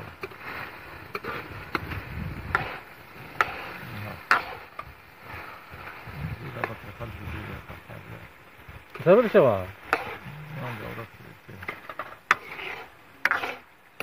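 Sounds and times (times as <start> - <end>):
ladle scraping iron pan: 0.0 - 5.9, 9.8 - 11.0, 11.6 - 13.7.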